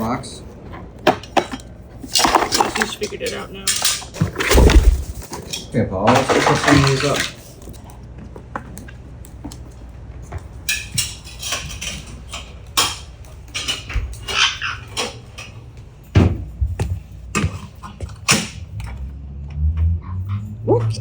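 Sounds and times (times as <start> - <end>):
rustling: 4.0 - 5.5.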